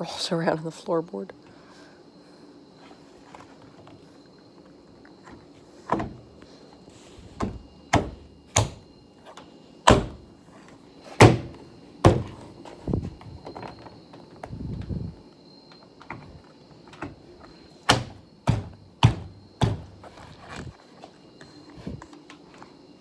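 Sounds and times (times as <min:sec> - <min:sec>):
sharp thunks and knocks on car door: 0:05.9 - 0:06.3, 0:07.4 - 0:08.9, 0:09.9 - 0:10.3, 0:11.2 - 0:12.6, 0:17.8 - 0:20.7.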